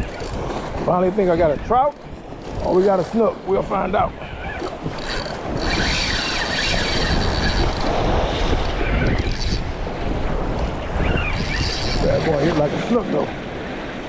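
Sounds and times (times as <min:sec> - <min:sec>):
waves washing: 0:00.0 - 0:14.0
wind buffeting microphone: 0:00.0 - 0:14.0
thin high whirr: 0:04.4 - 0:09.7.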